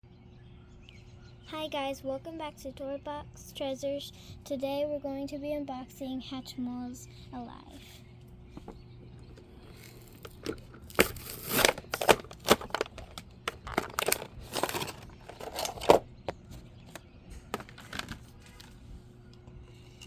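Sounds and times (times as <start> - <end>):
packaging being torn and crinkled: 9.7 - 16.0, 17.5 - 18.8.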